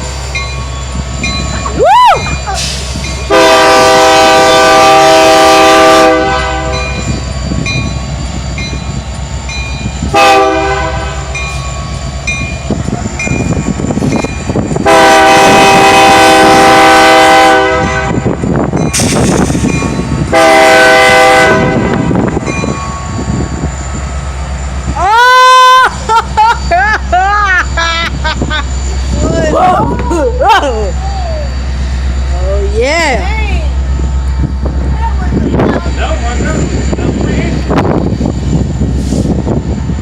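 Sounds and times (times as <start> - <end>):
passing train rumble: 0.0 - 40.0
locomotive air horn blasts: 3.3 - 7.0, 10.1 - 11.4, 14.8 - 18.3, 20.3 - 22.4.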